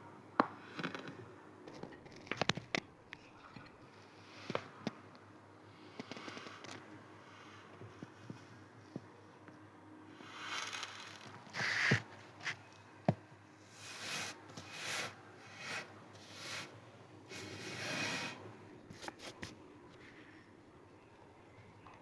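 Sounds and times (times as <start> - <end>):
sand swishing and crunching: 13.7 - 18.5.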